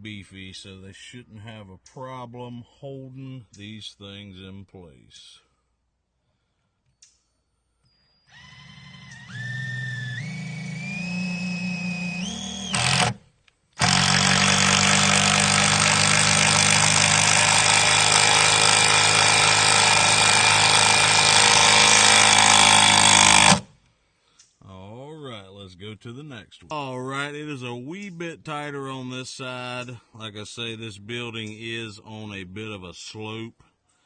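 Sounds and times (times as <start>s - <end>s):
power drill driving screw into wood: 8.0s - 23.8s.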